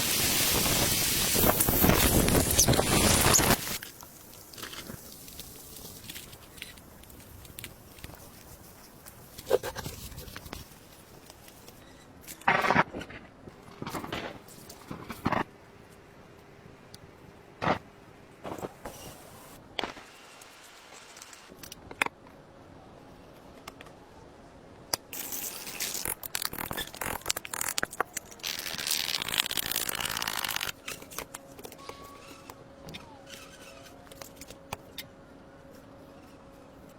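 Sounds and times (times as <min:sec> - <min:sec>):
dense scraping and crackling: 0:00.2 - 0:11.8, 0:25.2 - 0:34.6.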